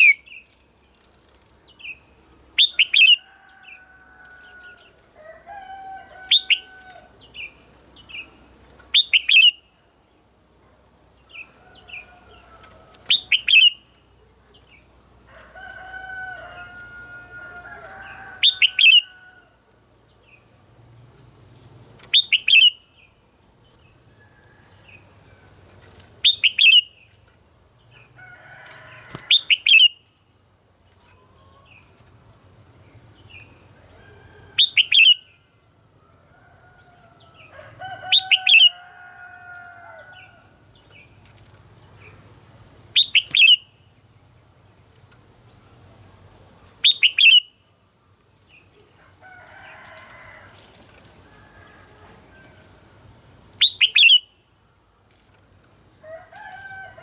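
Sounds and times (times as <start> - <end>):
bird singing sharp phrases: 1.7 - 3.3, 6.2 - 9.8, 13.0 - 14.9, 18.0 - 20.5, 22.0 - 23.2, 26.2 - 27.2, 43.0 - 43.8, 46.8 - 47.6, 53.6 - 54.4
faint lower bird calls: 53.6 - 54.5.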